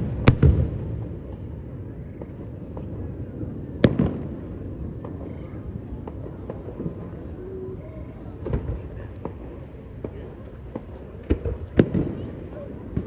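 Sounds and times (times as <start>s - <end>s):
faint firework pops: 0.0s - 3.0s, 3.8s - 4.4s, 8.4s - 13.0s
firework bangs: 0.0s - 7.4s, 8.4s - 13.0s.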